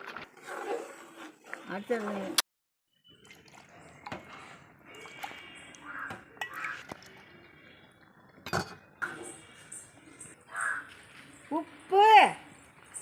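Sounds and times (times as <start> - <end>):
metal utensils clinking on pots: 8.4 - 9.4.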